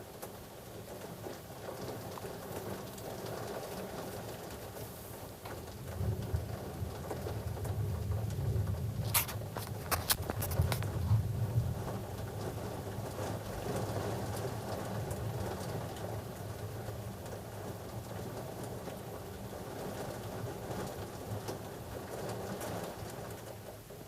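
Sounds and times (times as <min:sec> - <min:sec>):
rain falling: 0:00.0 - 0:24.0
low thunder rumble: 0:05.7 - 0:16.9.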